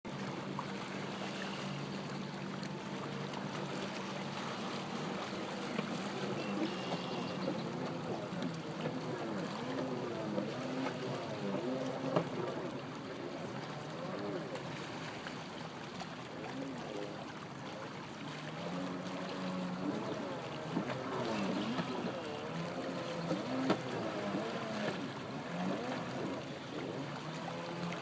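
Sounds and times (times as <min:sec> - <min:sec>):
water noise: 0:00.0 - 0:28.0
jet ski engine running: 0:00.1 - 0:28.0.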